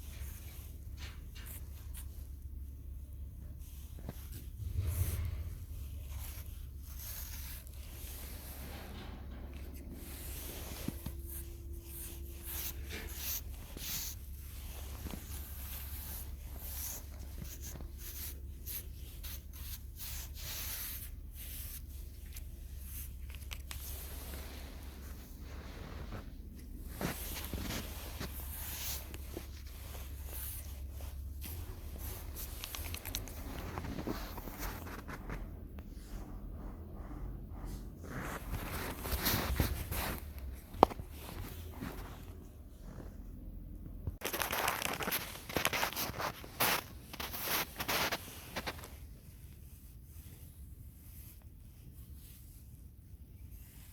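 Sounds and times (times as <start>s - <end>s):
scratching and rustling: 0.0s - 43.4s, 44.2s - 53.9s
steady low hum: 0.0s - 44.2s
low hum: 2.4s - 20.4s.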